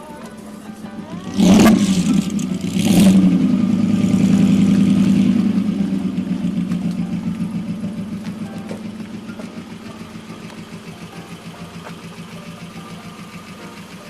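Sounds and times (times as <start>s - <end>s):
car engine revving: 0.5s - 14.0s.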